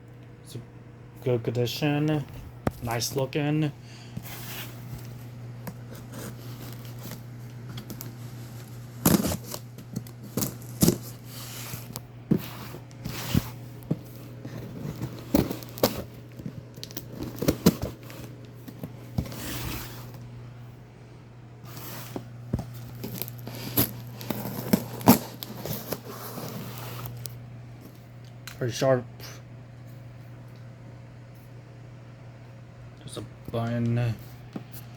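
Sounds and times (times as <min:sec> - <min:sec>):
packaging tearing and crinkling: 0:05.8 - 0:12.0, 0:14.6 - 0:18.4, 0:22.8 - 0:27.3
knife slicing cardboard and tape: 0:09.0 - 0:09.6.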